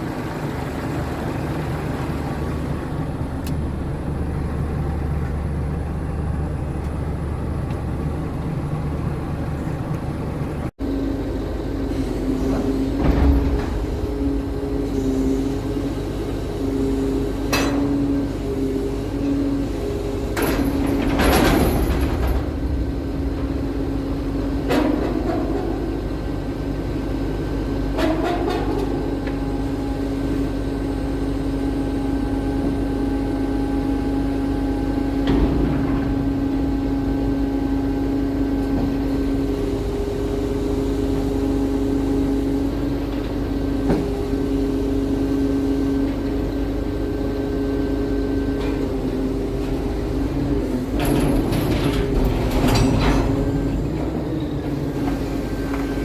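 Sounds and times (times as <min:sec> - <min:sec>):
truck engine whining: 0:00.0 - 0:56.0
metallic knocks and clanks: 0:13.0 - 0:15.0, 0:20.3 - 0:26.4, 0:35.1 - 0:40.2, 0:50.8 - 0:54.3.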